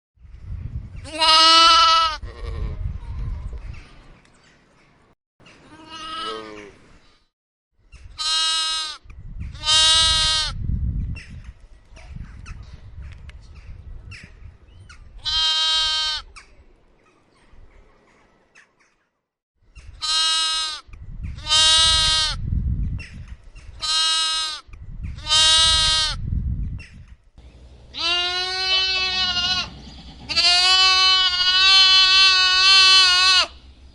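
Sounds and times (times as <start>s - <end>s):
lamb bleating: 1.1s - 2.8s, 5.7s - 6.7s, 8.2s - 9.0s, 9.6s - 10.6s, 15.2s - 16.3s, 20.0s - 20.8s, 21.4s - 22.4s, 23.8s - 24.6s, 25.2s - 26.2s, 27.9s - 33.6s.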